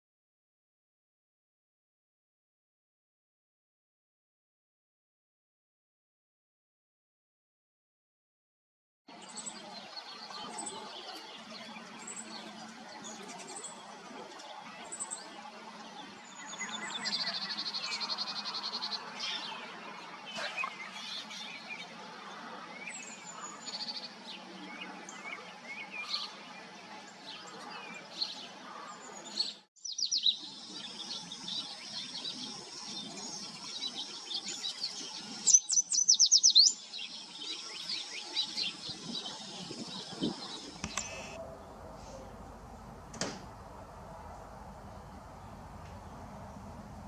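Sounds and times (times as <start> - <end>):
birds chirping: 9.2 - 47.0
low background hum: 40.8 - 47.0.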